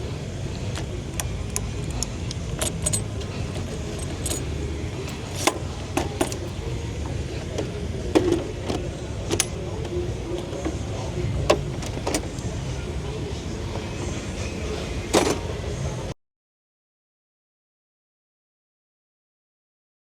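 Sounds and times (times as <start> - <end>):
low car rumble: 0.0 - 16.1
keys jangling: 0.7 - 6.5, 9.3 - 9.6.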